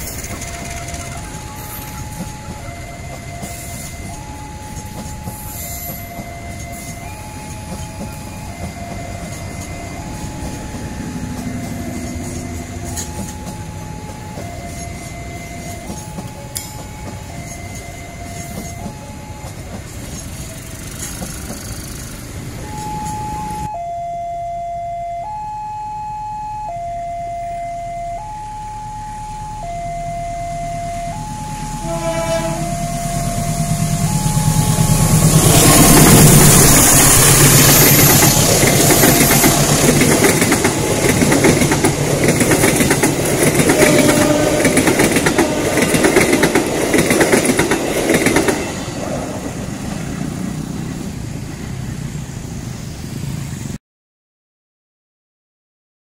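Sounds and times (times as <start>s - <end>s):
level crossing alarm two tones: 0.0s - 19.8s, 22.6s - 49.6s
train passing close by: 0.0s - 23.7s, 29.1s - 53.8s
wheels clacking on rails: 0.0s - 23.7s, 31.0s - 52.2s
diesel locomotive horn blast: 30.9s - 42.0s, 43.1s - 49.0s.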